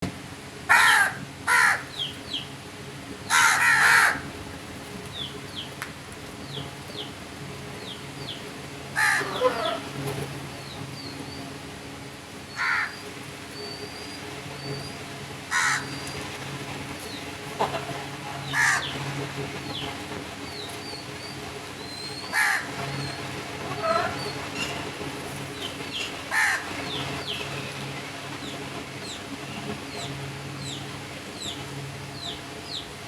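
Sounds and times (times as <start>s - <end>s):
crows cawing: 0.7s - 2.1s, 3.3s - 4.4s, 9.0s - 10.0s, 12.6s - 13.0s, 15.5s - 16.0s, 17.6s - 19.0s, 22.3s - 22.8s, 23.6s - 24.4s, 26.3s - 26.8s
small birds chirping: 1.6s - 2.6s, 5.0s - 8.6s, 19.6s - 24.8s, 25.4s - 27.8s, 28.4s - 33.0s.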